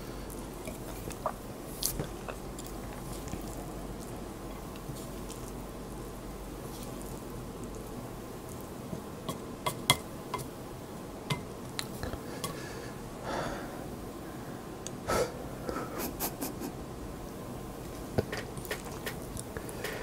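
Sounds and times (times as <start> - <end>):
person chewing noodles: 0.2 - 9.9.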